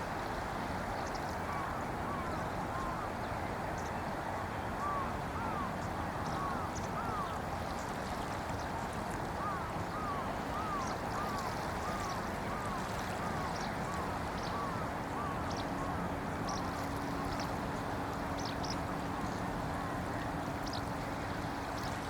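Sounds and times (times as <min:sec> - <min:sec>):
distant traffic hum: 0:00.0 - 0:22.0
faint engine hum: 0:00.0 - 0:22.0
small waves lapping: 0:00.0 - 0:22.0
bird calling: 0:04.8 - 0:07.4, 0:09.4 - 0:17.6.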